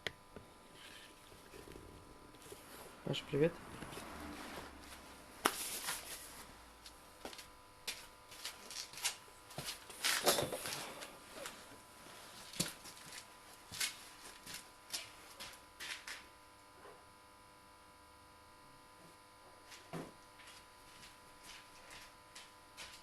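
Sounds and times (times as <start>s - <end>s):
faint steady hum: 0.0s - 23.0s
scuffing clatter: 20.4s - 23.0s.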